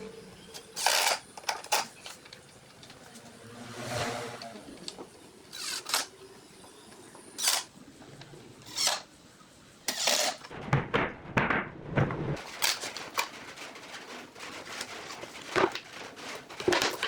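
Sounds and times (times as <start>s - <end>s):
short scraping strokes: 3.4s - 4.9s.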